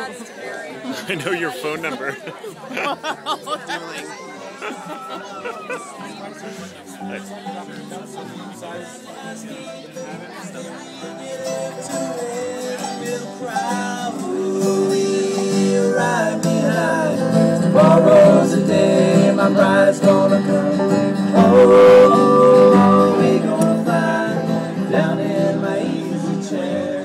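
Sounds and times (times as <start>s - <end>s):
plucked acoustic guitar: 4.8s - 27.0s
person singing: 9.0s - 27.0s.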